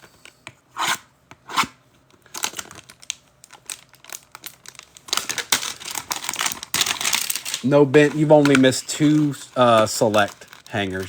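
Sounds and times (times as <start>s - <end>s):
plastic crinkling: 2.2s - 11.0s
plastic wrapper tearing: 2.2s - 11.0s.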